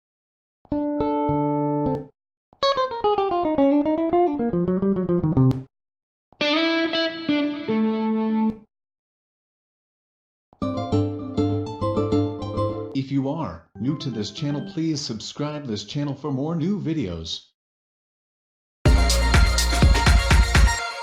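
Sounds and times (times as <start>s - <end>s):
musical notification tones: 13.8s - 15.0s.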